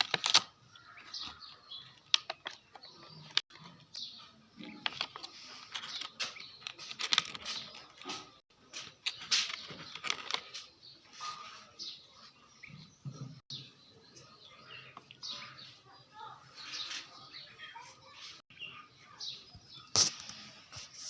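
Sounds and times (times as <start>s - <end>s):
small box being handled and unpacked: 0.0s - 3.9s, 4.7s - 10.8s.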